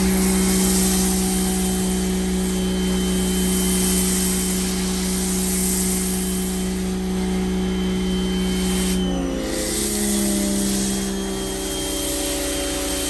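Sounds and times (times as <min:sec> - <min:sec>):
water spray hissing: 0:00.0 - 0:06.8
pressure washer motor humming: 0:00.0 - 0:13.0.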